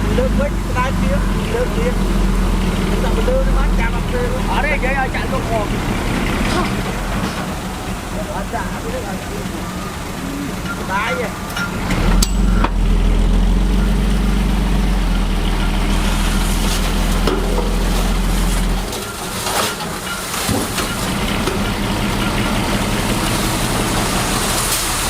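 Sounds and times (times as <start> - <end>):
heavy diesel engine droning: 0.0 - 25.0.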